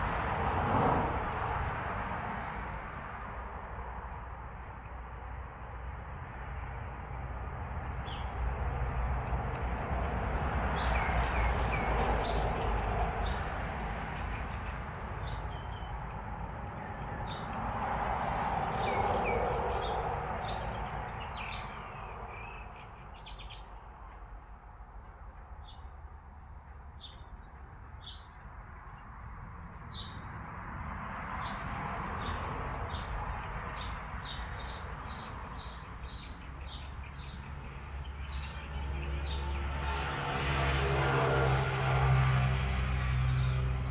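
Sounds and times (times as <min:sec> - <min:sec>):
small birds chirping: 0:18.8 - 0:24.9.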